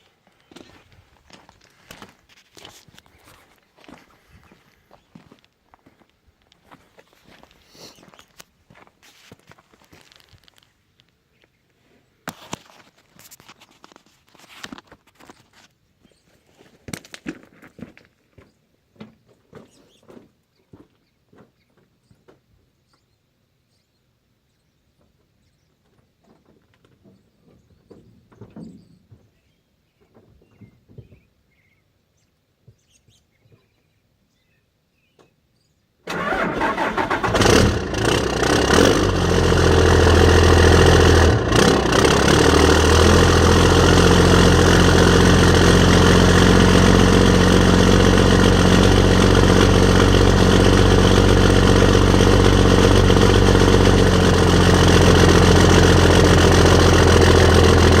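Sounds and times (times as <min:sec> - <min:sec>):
diesel engine cranking and idling: 0:36.1 - 0:58.0.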